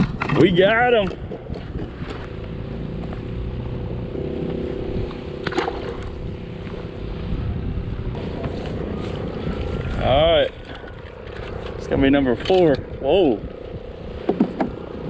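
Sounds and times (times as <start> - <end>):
water noise: 0.0 - 15.0
wind: 0.0 - 15.0
electric motor humming: 2.2 - 10.0.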